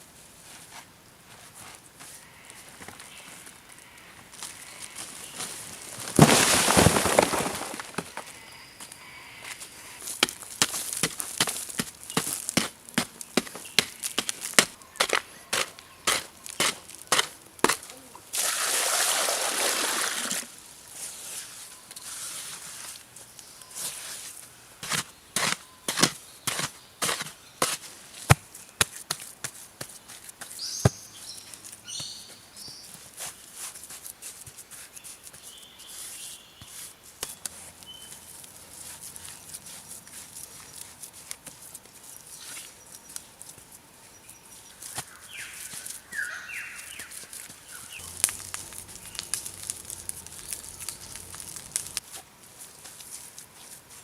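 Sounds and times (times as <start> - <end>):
rough scraping rush: 5.9 - 8.2
bird chirps: 30.6 - 32.9, 35.4 - 38.3, 44.0 - 48.2.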